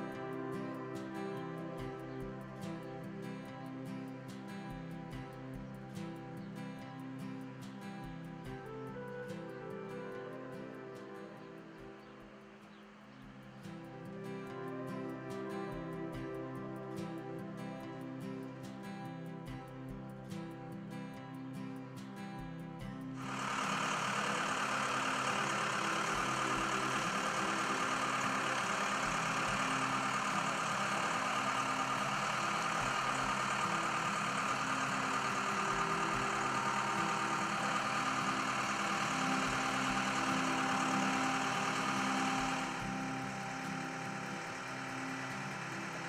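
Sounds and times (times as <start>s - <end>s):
diesel engine running: 23.2s - 46.0s.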